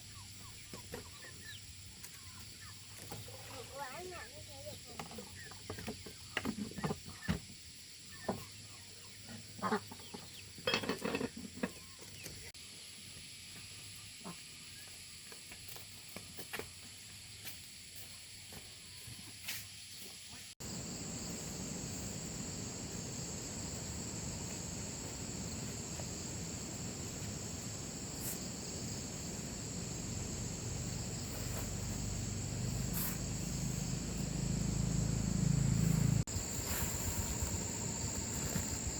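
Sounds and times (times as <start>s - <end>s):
high-pitched insect drone: 20.6s - 38.9s.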